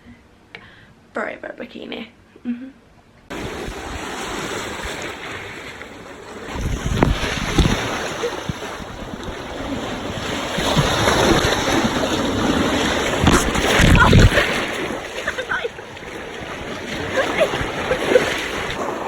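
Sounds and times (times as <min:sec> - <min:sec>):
sea water lapping around kayak: 0:03.3 - 0:19.0
wind buffeting microphone: 0:06.4 - 0:19.0.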